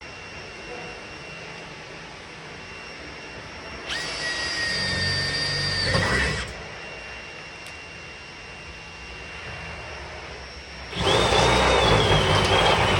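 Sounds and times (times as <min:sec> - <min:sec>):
power tool whining: 0:03.7 - 0:08.0, 0:08.6 - 0:12.9.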